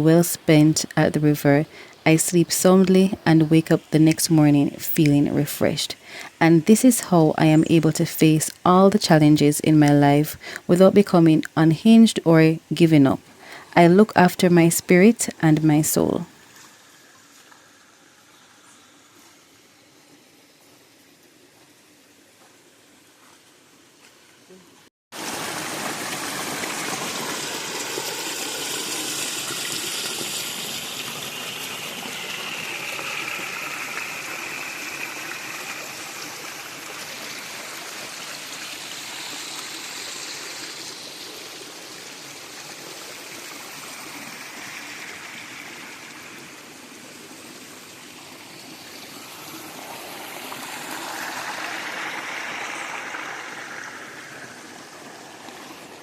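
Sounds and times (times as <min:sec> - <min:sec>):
river water over rocks: 0:25.2 - 0:56.0.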